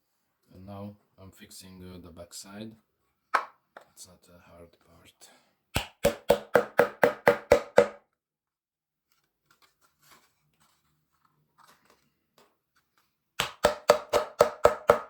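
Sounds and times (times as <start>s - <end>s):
hammer driving nails into wood: 5.8s - 8.0s, 13.4s - 15.0s.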